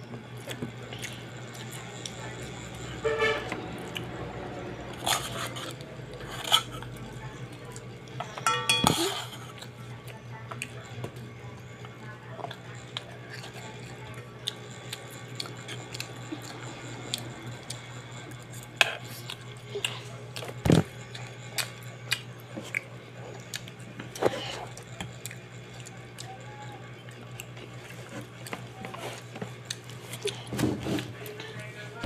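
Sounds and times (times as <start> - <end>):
steady low hum: 0.0 - 32.0
child chewing noodles: 0.3 - 2.6, 3.4 - 4.2, 4.8 - 26.4, 27.0 - 30.6
metal spoon knocking a pot: 8.4 - 9.0.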